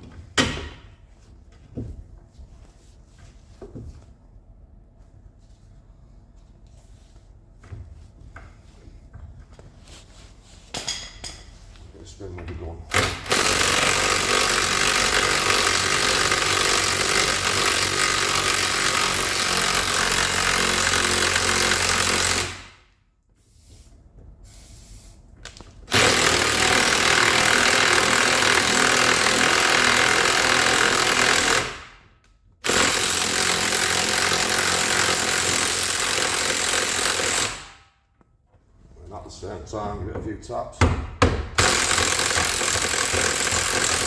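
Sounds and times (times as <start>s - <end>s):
pneumatic impact wrench hammering: 12.9s - 22.8s, 25.9s - 32.0s, 32.6s - 37.8s, 41.1s - 44.0s.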